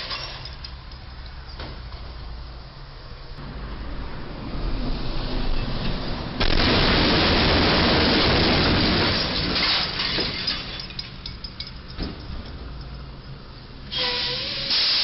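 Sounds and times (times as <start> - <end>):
metal grinding and scraping: 0.0 - 1.7
truck crashing into bridge: 6.4 - 11.1
debris falling: 6.4 - 12.4.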